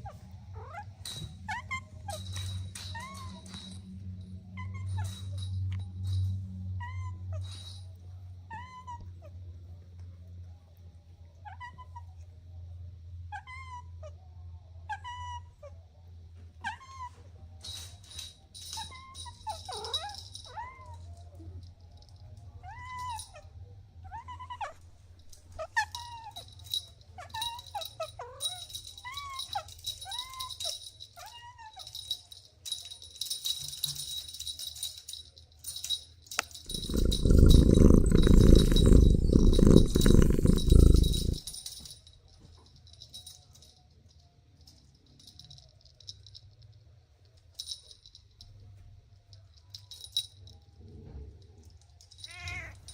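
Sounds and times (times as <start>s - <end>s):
kittens meowing: 36.7s - 41.5s.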